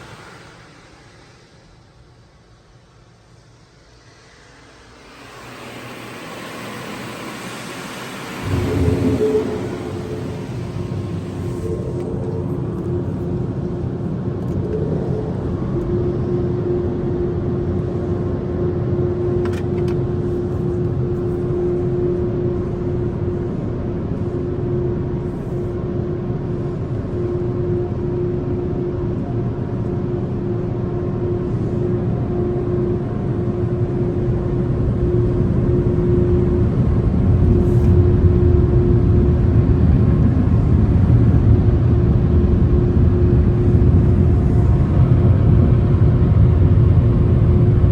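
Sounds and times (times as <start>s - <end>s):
car wash machinery rumbling: 0.0s - 47.9s.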